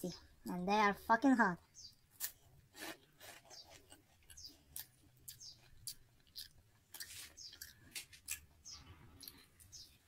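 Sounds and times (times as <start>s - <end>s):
chewing crunchy snacks: 2.1s - 10.0s.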